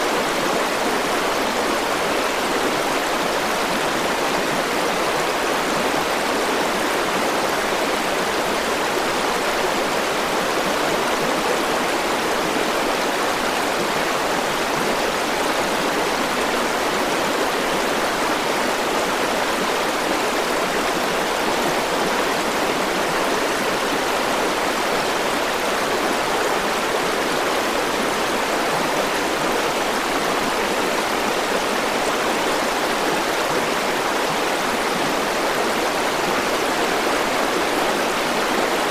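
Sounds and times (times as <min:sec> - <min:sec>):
river flowing: 0:00.0 - 0:38.9.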